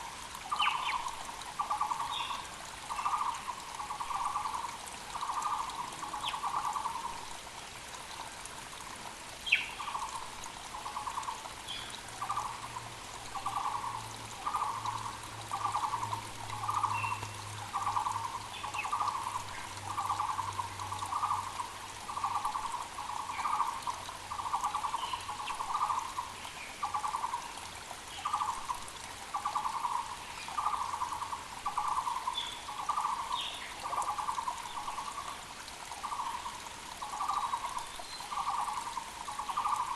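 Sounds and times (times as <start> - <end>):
creek hissing: 0.0 - 39.9
small birds chirping: 0.4 - 7.1.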